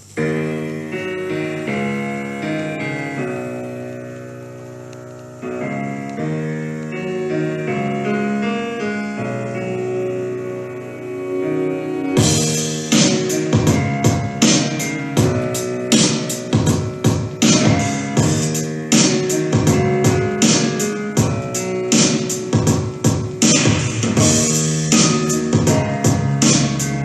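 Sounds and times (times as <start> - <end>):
piano keyboard chords: 0.0 - 27.0
sharp drum hits: 12.2 - 26.7.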